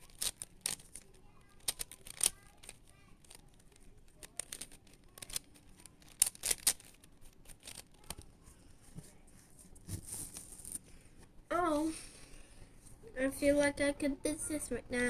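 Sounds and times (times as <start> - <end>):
plastic puzzle cube clicking: 0.0 - 8.2.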